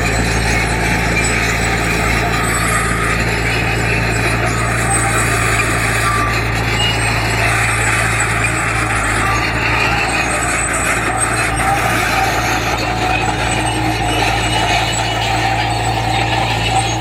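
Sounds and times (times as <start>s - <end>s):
diesel engine drone: 0.0s - 17.0s
mechanical rattling and scraping: 0.0s - 17.0s.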